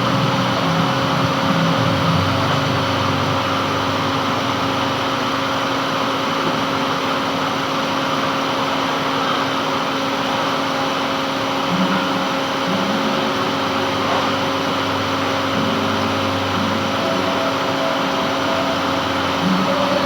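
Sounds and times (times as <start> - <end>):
metal lathe running: 0.0 - 20.0.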